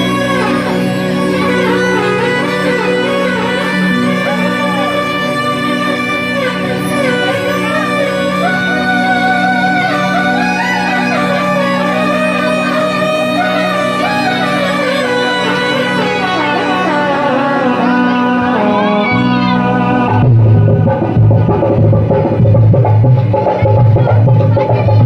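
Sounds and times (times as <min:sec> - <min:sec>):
sustained drone: 0:00.0 - 0:22.9
wavering lead melody: 0:00.0 - 0:25.0
drums: 0:19.6 - 0:25.0.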